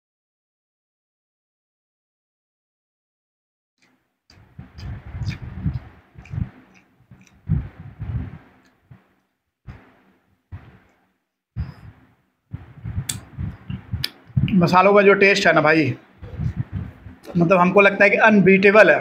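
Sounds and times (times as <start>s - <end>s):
person chewing with mouth clicks: 4.6s - 8.8s, 12.8s - 14.6s.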